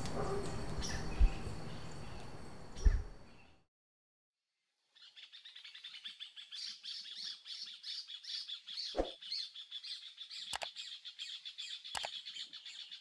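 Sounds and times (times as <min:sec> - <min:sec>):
songbirds chirping: 0:00.0 - 0:03.6, 0:05.0 - 0:13.0
sharp click: 0:10.5 - 0:10.7.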